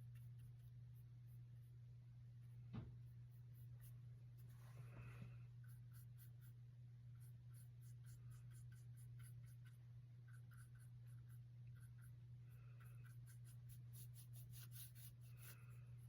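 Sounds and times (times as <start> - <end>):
brush strokes on canvas: 3.8 - 6.0.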